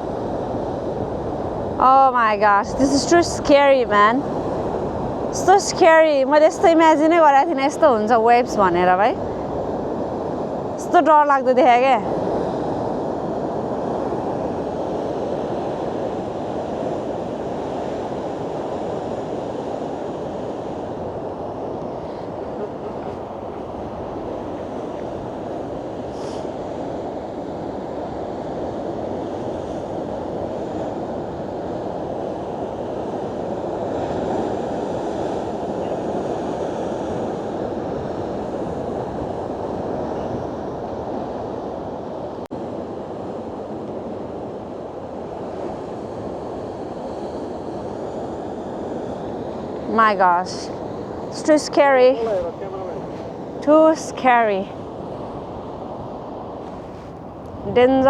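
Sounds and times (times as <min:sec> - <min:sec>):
heavy ocean surf breaking: 0:00.0 - 0:58.0
wind buffeting microphone: 0:00.0 - 0:58.0.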